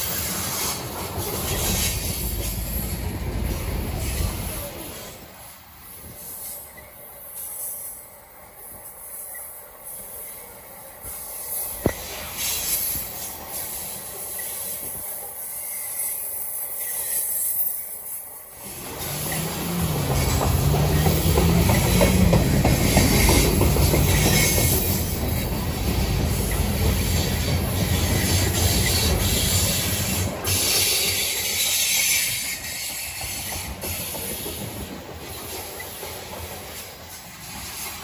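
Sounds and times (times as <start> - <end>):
freight train wheels clattering: 18.6 - 38.0.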